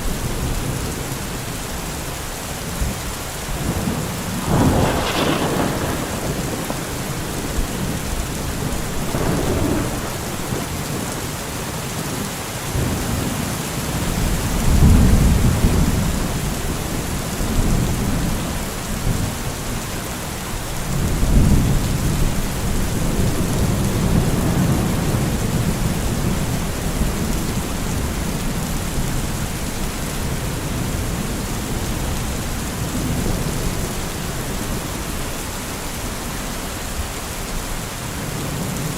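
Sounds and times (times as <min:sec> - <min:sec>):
heavy rain: 0:00.0 - 0:38.9
thunder rumbling: 0:02.7 - 0:11.7, 0:12.7 - 0:19.8, 0:20.8 - 0:35.3.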